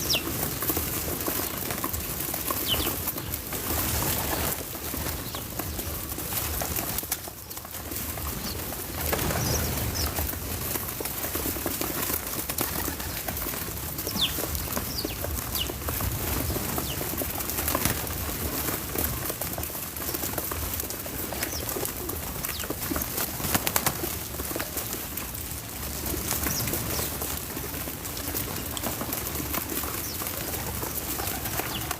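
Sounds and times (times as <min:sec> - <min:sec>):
birds chirping: 0:00.0 - 0:10.4, 0:12.8 - 0:17.2, 0:28.2 - 0:31.9.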